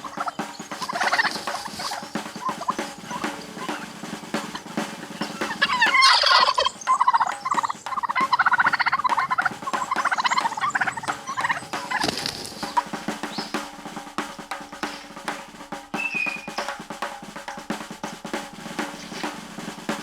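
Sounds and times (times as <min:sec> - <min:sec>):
bird rattling call: 0:00.0 - 0:13.6, 0:16.0 - 0:16.8.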